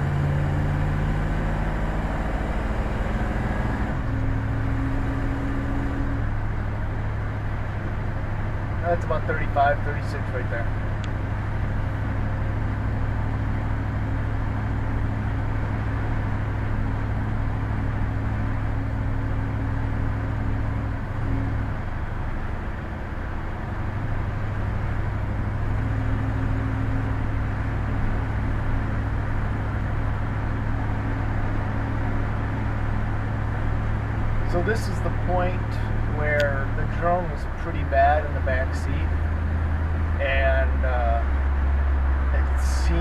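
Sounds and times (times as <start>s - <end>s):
car exhaust drone: 0.0s - 43.0s
road noise inside car: 0.0s - 43.0s.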